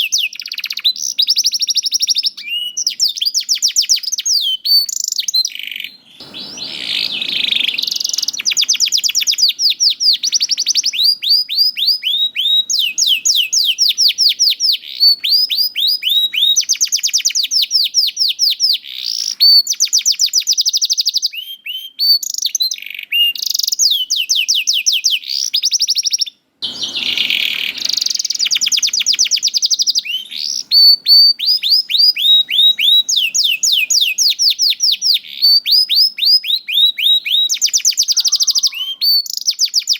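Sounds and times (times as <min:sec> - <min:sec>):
canary singing fast trills: 0:00.0 - 0:39.9
harsh buzzy bird note: 0:06.1 - 0:11.4, 0:26.6 - 0:33.0.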